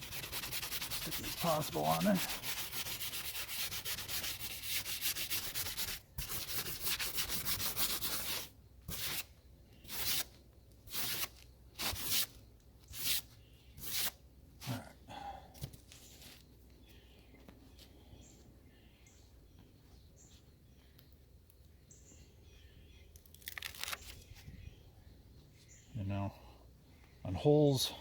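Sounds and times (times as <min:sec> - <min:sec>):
brush scrubbing a roof: 0:00.0 - 0:10.3, 0:10.9 - 0:12.3, 0:12.9 - 0:14.2.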